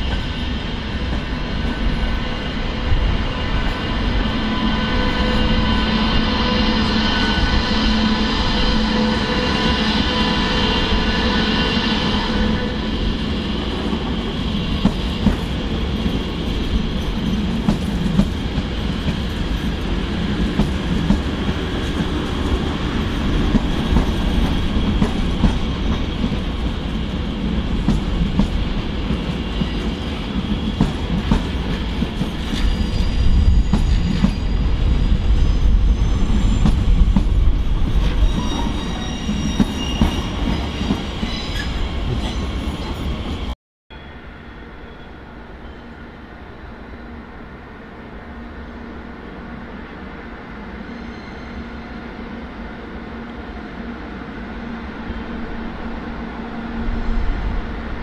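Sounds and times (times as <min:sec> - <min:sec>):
electric train rumbling past: 0:00.0 - 0:58.0
faint high wheel squeal: 0:32.4 - 0:37.1, 0:38.0 - 0:43.2, 0:44.0 - 0:46.1, 0:50.8 - 0:52.0.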